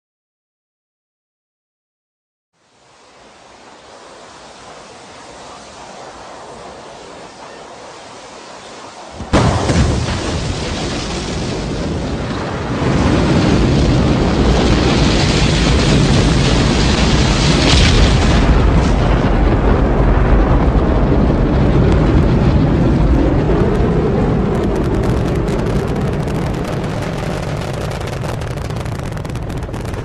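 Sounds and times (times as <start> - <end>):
rocket engines rumbling: 2.6 - 30.0.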